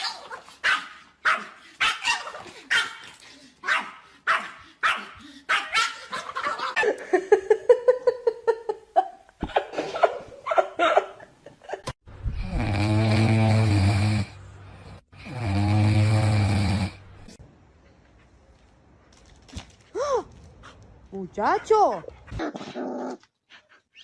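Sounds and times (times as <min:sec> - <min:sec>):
dog snoring: 0:12.3 - 0:14.4, 0:15.2 - 0:17.0.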